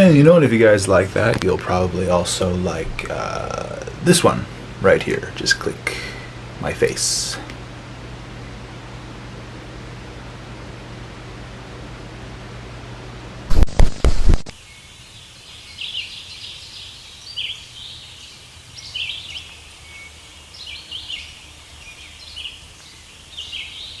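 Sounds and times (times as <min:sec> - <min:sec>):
birds chirping: 0:14.6 - 0:24.0.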